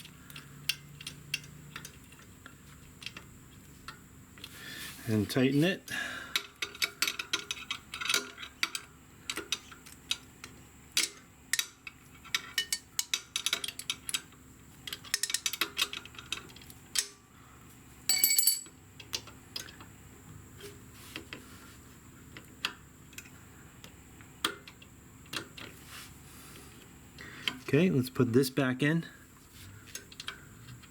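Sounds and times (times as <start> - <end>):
faint steady hum: 0.0 - 30.9
ringing metal clank: 18.1 - 18.7.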